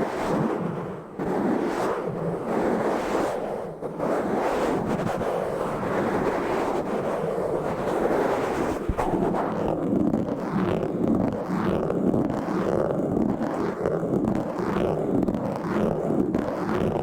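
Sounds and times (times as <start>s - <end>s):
scratching on a microphone: 0.0s - 17.0s.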